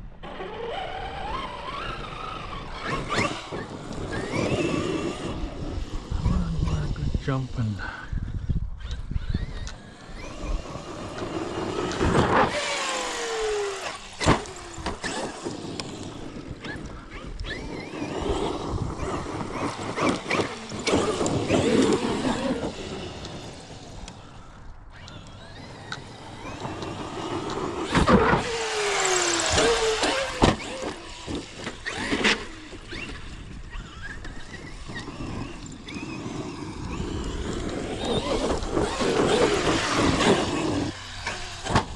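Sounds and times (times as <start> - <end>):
electric motor whine: 0.0 - 8.0, 8.6 - 41.9
rough scrabbling of tires on dirt: 0.2 - 41.9.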